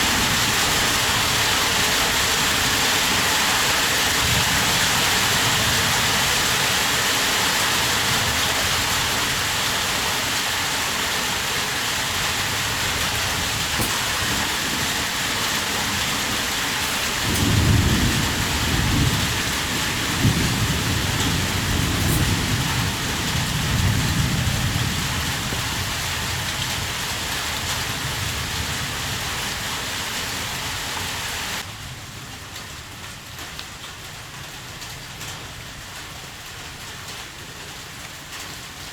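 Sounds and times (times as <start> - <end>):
thunder rumbling: 0.0 - 30.1
heavy rain falling: 0.0 - 38.9.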